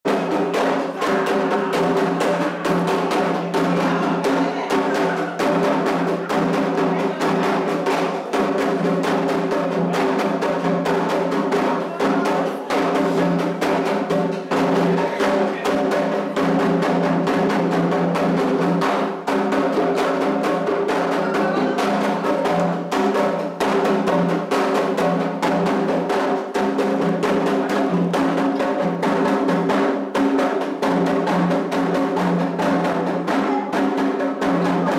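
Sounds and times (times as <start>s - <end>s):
hand drumming: 0.1s - 34.9s.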